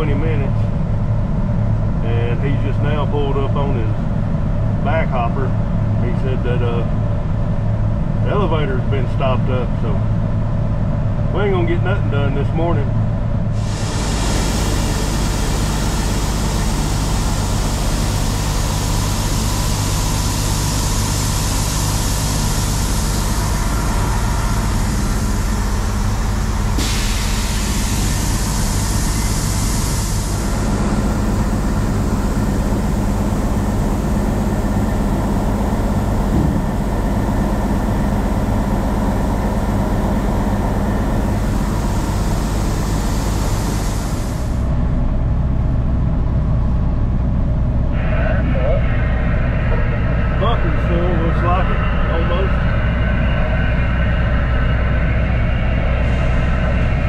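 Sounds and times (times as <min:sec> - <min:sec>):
truck diesel engine running: 0:00.0 - 0:57.0
steady hiss: 0:13.6 - 0:30.6.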